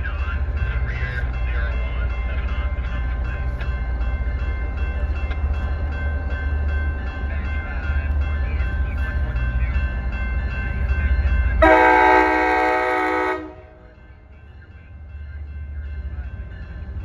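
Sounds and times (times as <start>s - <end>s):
train rumbling: 0.0s - 17.0s
locomotive air horn blast: 11.6s - 13.8s.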